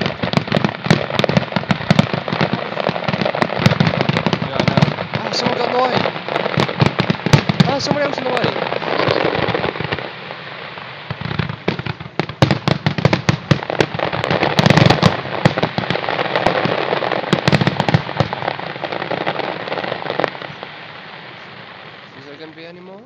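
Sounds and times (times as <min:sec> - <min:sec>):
rapid sharp pops: 0:00.0 - 0:10.0
fireworks bursting and crackling: 0:00.0 - 0:23.0.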